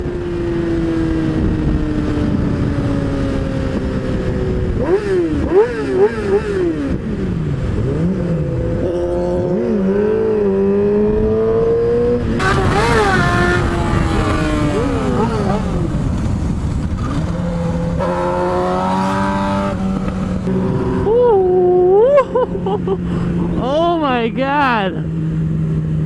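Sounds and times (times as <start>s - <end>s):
motorcycle engine revving: 0.0s - 20.8s
wind noise on microphone: 0.0s - 21.6s.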